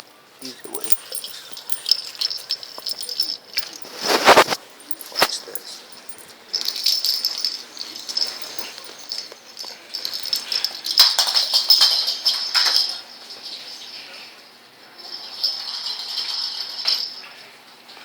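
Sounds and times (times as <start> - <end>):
toy ball rattling: 0.0 - 13.0.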